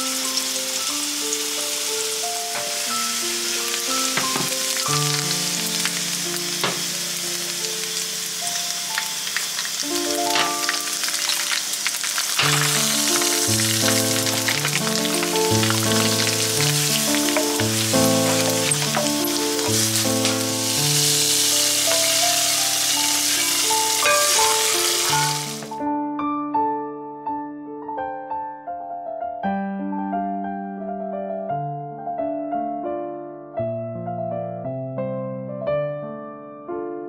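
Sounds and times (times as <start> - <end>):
spices sizzling in hot oil: 0.0 - 25.8
background music: 0.0 - 27.3.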